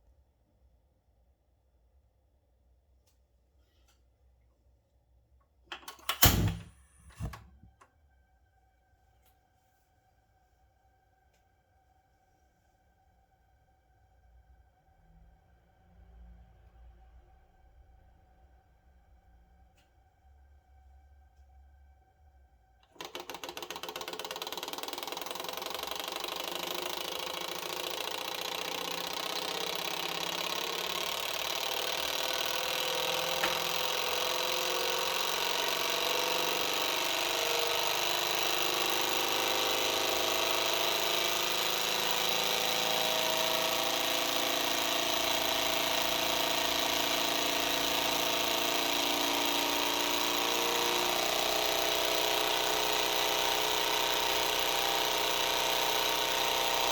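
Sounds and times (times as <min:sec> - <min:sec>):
model stirling engine running: 0:22.9 - 0:56.9.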